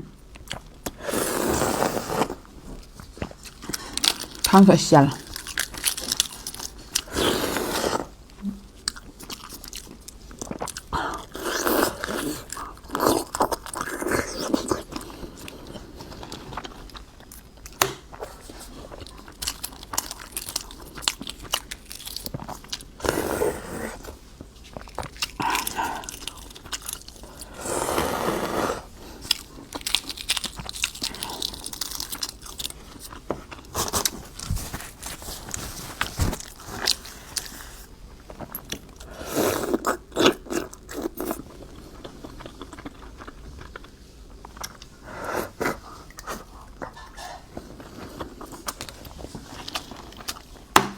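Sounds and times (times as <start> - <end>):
biting and chewing crunches: 5.2 - 23.0, 29.0 - 37.6.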